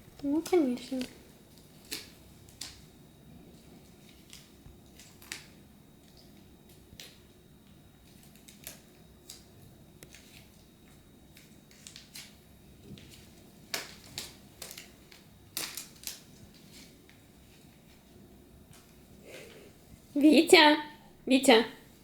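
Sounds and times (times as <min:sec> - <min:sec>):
dog chewing tape crinkling: 0:08.0 - 0:18.0.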